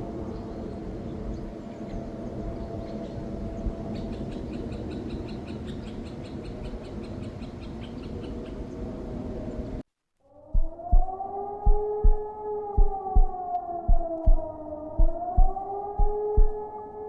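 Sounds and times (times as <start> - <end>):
low rumbling noise: 0.0 - 9.8, 10.5 - 16.8
small bird chirping: 2.8 - 8.9.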